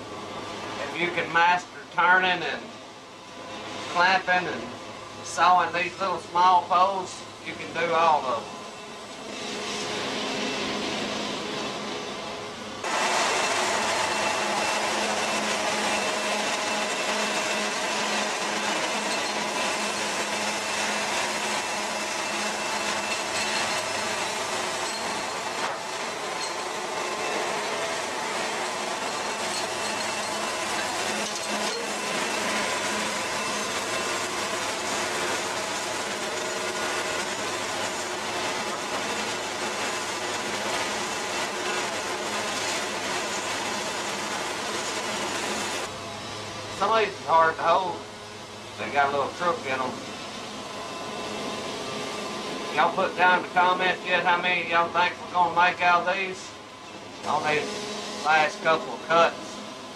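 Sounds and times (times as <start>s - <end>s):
sawmill engine hum: 0.0s - 59.9s
band saw blade cutting log: 12.8s - 45.9s.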